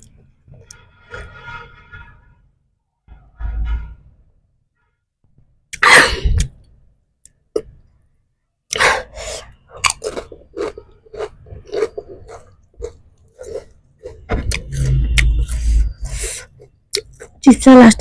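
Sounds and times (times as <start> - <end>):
person chewing crunchy chips: 8.7 - 17.4.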